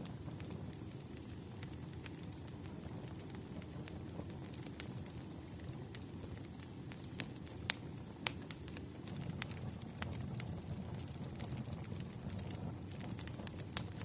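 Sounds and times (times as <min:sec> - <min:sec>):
low rumble of burning logs: 0:00.0 - 0:14.0
wood fire crackling and popping: 0:00.0 - 0:14.0.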